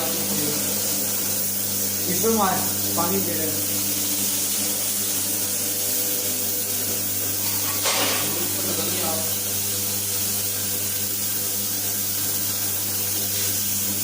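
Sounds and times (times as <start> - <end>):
electric motor humming and hissing: 0.0 - 14.0.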